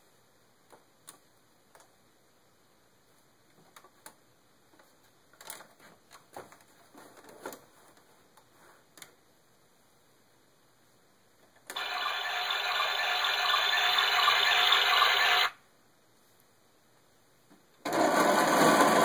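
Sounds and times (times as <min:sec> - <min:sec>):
faint irregular clicks and taps: 0:00.6 - 0:02.0.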